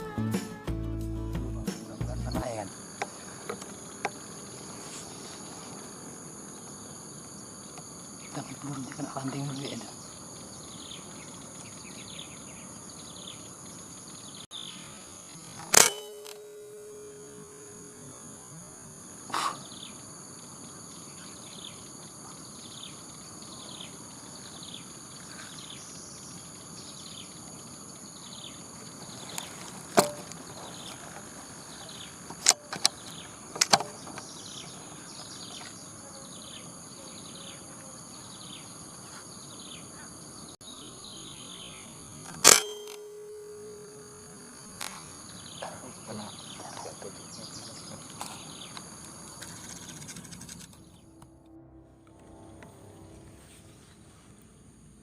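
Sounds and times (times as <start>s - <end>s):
insects buzzing and chirping: 1.8s - 51.2s
brief ringing tone: 15.7s - 18.3s, 42.5s - 44.4s.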